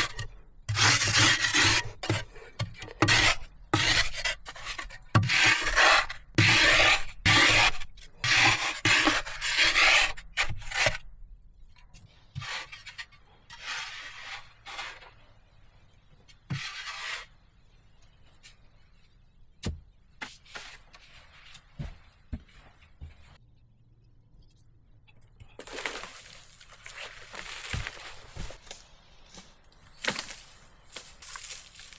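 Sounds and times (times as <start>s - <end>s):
rasping scraping strokes: 0.0s - 11.0s, 16.5s - 17.4s.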